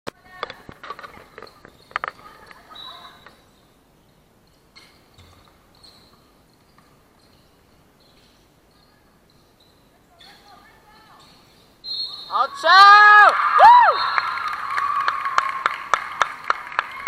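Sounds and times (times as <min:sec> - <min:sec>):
shoe squeaks: 0:01.0 - 0:12.6
people shouting: 0:12.3 - 0:14.1.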